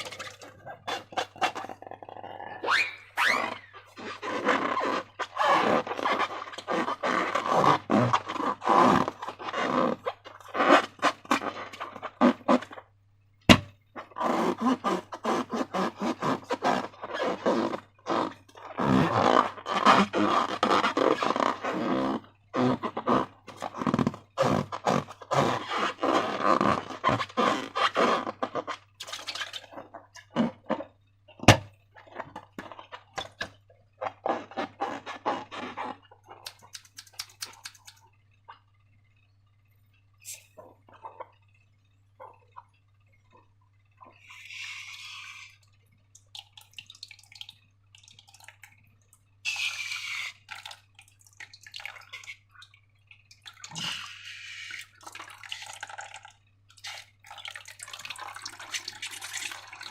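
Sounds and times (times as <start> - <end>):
faint steady hum: 0.0 - 59.9
sharp clicks: 36.5 - 38.0
slime squelching: 49.5 - 59.9.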